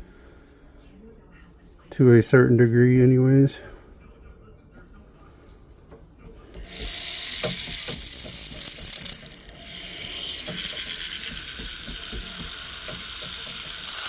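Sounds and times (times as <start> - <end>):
hand tool rasping on metal: 12.4 - 14.0.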